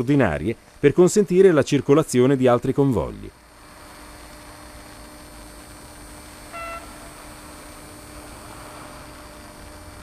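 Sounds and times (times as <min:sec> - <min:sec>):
steady hiss and low hum: 0:00.0 - 0:10.0
short beep: 0:06.6 - 0:06.9.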